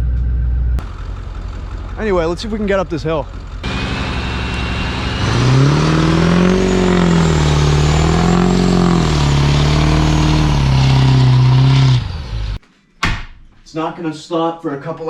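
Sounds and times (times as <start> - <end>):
diesel engine under load: 0.3 - 12.6
high turbo whistle: 3.6 - 12.6.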